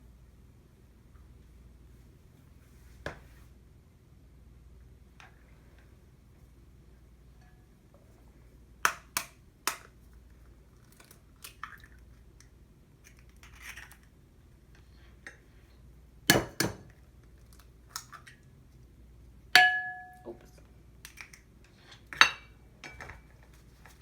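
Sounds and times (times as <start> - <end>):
dishes and utensils clinking: 19.6 - 20.5, 22.1 - 23.3.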